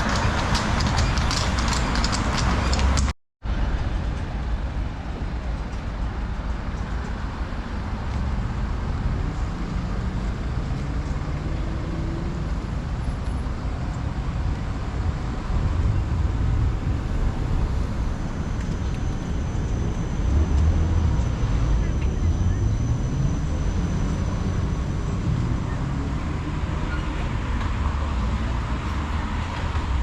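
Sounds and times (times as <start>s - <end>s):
low traffic rumble: 0.0s - 30.0s
passing cars and buses: 0.0s - 30.0s.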